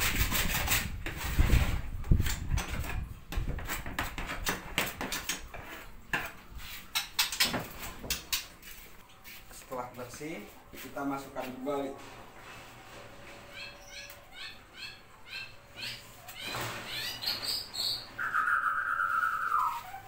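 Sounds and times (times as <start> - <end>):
scraping cage tray: 11.7 - 15.0, 15.6 - 18.2.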